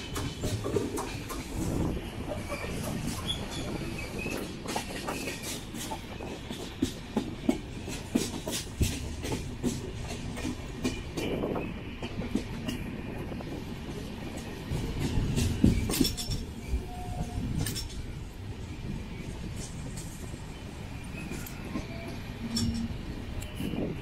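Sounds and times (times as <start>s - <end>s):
wheels clattering over rail joints: 0.0s - 12.9s
passenger train rumbling: 0.0s - 24.0s.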